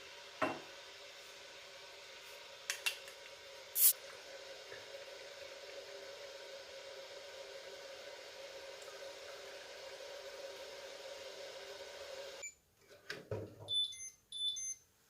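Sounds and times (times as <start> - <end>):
spray bottle squirt: 3.8 - 4.0.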